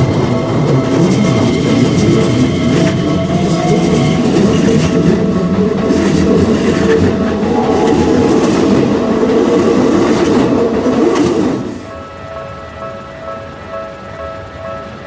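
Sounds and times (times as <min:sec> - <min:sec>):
train wheels clattering over rail joints: 0:00.0 - 0:11.9.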